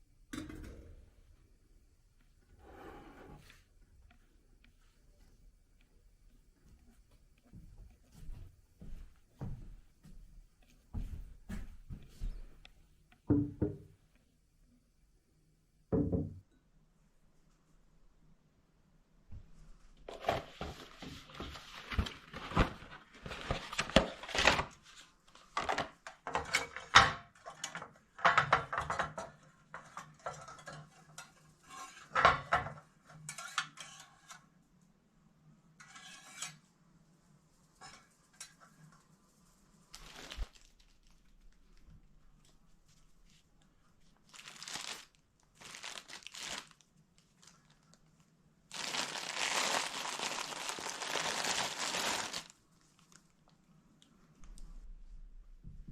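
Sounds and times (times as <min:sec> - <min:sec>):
rustling: 0:37.6 - 0:53.6.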